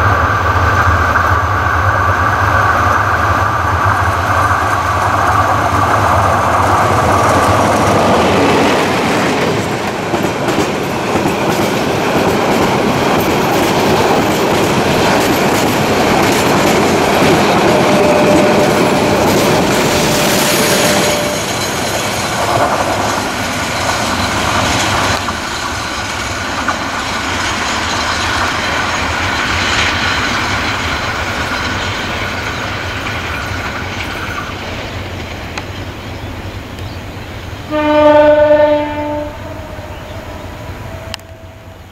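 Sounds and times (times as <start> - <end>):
train wheels on rails: 0.0 - 41.9
locomotive horn blast: 17.7 - 21.6, 37.7 - 41.6.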